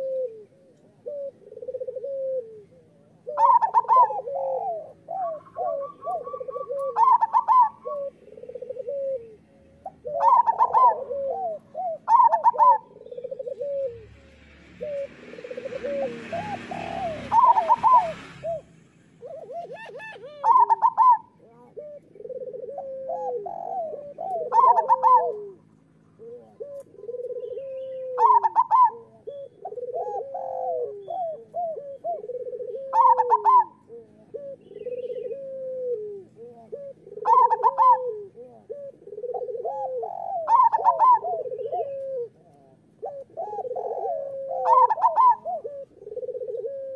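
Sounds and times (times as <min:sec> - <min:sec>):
doves cooing: 0:00.0 - 0:46.9.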